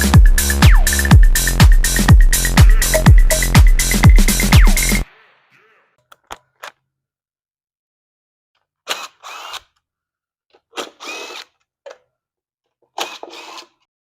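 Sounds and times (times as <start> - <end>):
power drill whirring: 8.9 - 9.7, 10.8 - 11.6, 13.0 - 13.9.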